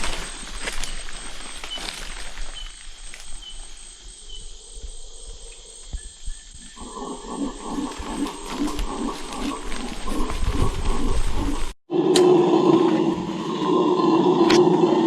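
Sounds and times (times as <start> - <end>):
insects droning: 0.0 - 11.8
pulsing animal call: 6.8 - 11.8.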